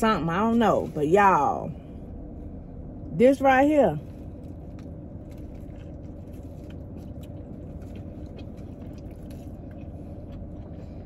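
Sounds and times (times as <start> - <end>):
low car interior hum: 0.0 - 11.0
soft chewing of sandwich: 4.0 - 11.0.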